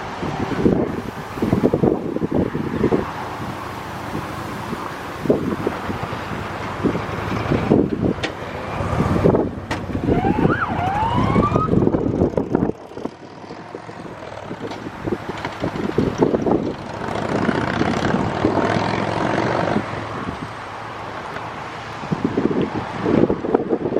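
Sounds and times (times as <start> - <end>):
fire engine rumbling past: 0.0 - 23.8
wind buffeting microphone: 0.0 - 23.9
siren sweeping up: 10.0 - 12.2.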